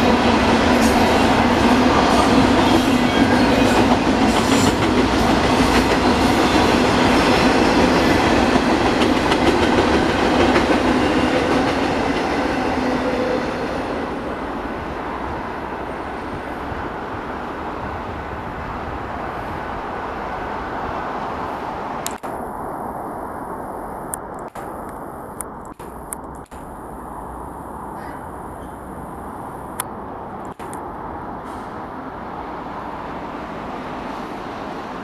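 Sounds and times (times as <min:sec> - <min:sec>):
train wheels clacking over rail joints: 0:00.0 - 0:13.0.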